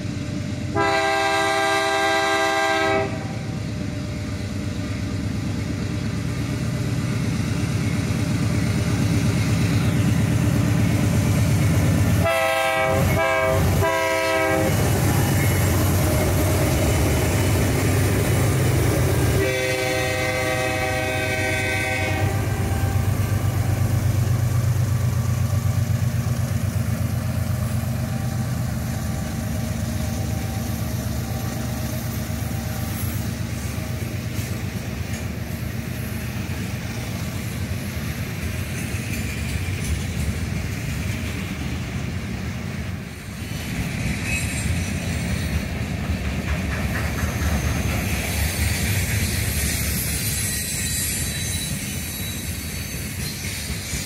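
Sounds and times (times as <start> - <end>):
diesel engines rumbling: 0.0 - 43.2
train moving on rails: 0.0 - 54.0
train horn blast: 0.7 - 3.5, 12.2 - 14.9, 19.2 - 23.4.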